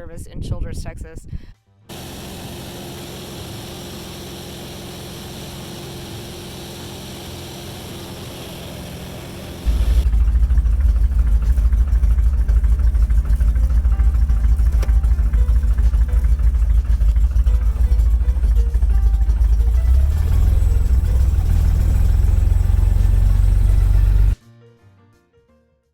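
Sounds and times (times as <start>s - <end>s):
light aircraft engine running: 1.9s - 24.4s.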